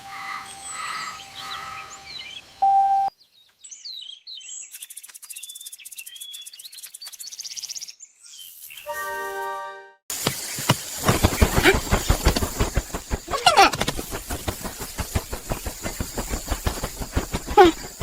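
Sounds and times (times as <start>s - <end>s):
birds chirping and twittering: 0.0s - 8.9s, 10.1s - 18.0s.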